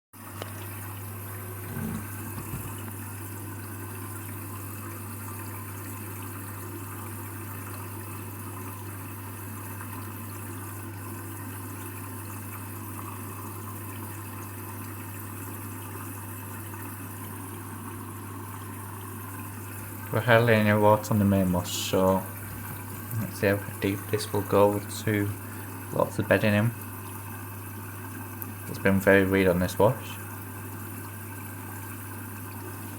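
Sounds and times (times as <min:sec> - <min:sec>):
water rushing in: 0:00.6 - 0:03.0
low thumps: 0:01.7 - 0:02.8.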